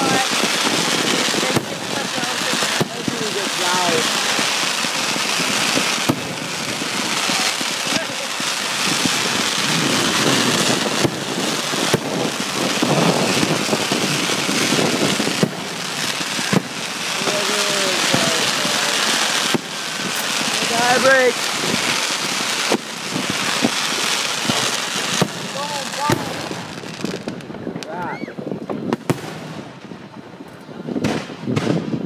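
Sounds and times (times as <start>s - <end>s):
firework fountains hissing crackle: 0.0s - 32.0s.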